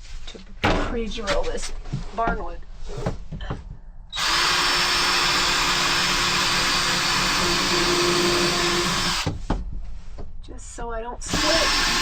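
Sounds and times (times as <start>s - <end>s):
power drill drilling into wood: 4.2s - 9.3s, 11.3s - 12.0s.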